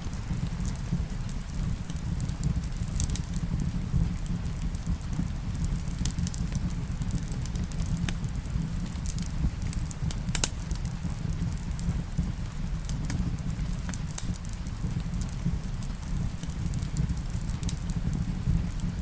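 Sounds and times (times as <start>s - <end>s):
soft rain hiss: 0.0s - 19.0s
wood fire crackling: 0.0s - 19.0s.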